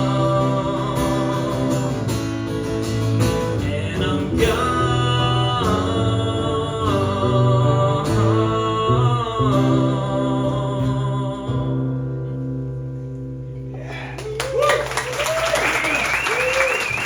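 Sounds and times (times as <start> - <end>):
person singing with vibrato: 0.0 - 2.6, 3.3 - 12.2
acoustic guitar: 0.0 - 14.2.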